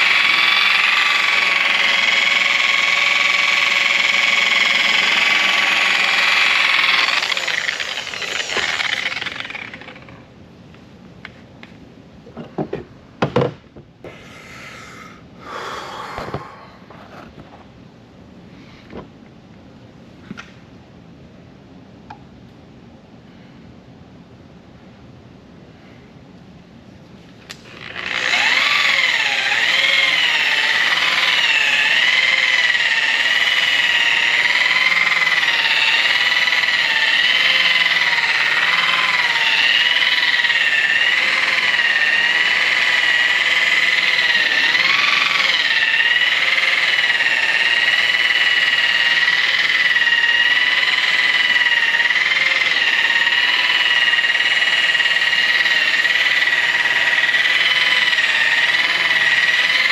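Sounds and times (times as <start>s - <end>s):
electric polisher whining: 0.0s - 10.2s, 27.6s - 59.9s.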